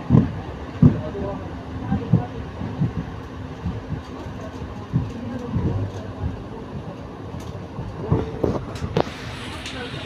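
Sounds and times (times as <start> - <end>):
train coaches rumbling on track: 0.0 - 10.0
train wheels knocking: 2.0 - 6.5.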